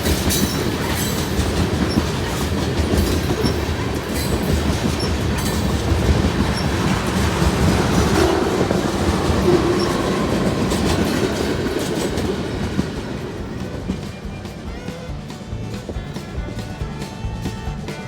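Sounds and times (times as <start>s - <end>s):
freight train rolling past: 0.0s - 18.0s
wheels clicking over rail joints: 0.0s - 18.0s.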